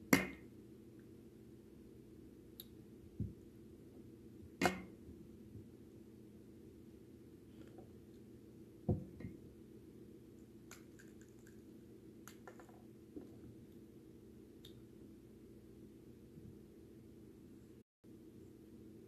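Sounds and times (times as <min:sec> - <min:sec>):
dull thump: 0:08.9 - 0:09.4
soft clicks and crunches of eating: 0:10.7 - 0:12.8.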